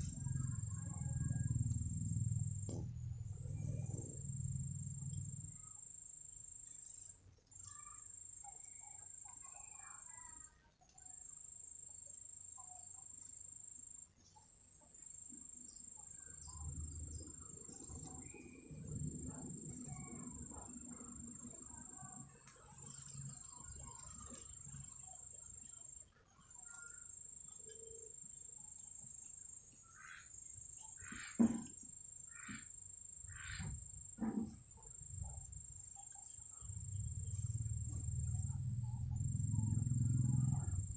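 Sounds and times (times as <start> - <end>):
insect trilling: 0.0 - 14.0, 15.0 - 40.9
faint knocks and taps: 31.0 - 32.7.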